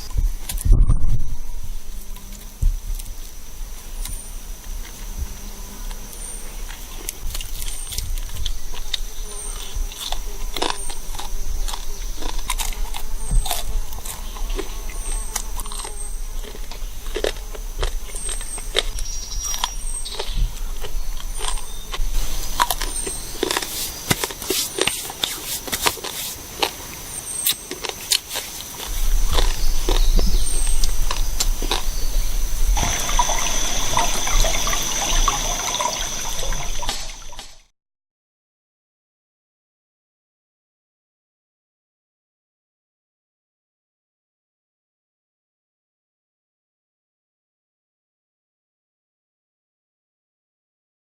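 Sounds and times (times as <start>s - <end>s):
high insect buzz: 0.0s - 37.7s.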